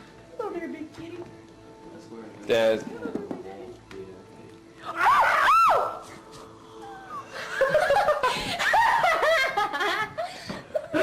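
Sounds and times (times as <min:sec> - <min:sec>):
people laughing: 0:06.9 - 0:11.0.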